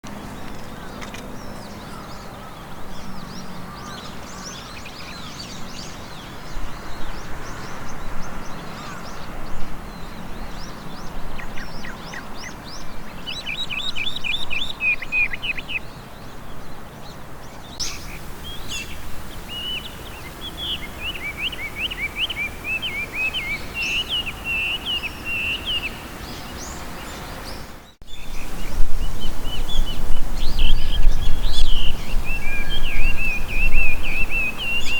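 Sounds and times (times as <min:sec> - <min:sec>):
bird singing whistled phrases: 0:17.8 - 0:26.8, 0:29.4 - 0:34.9.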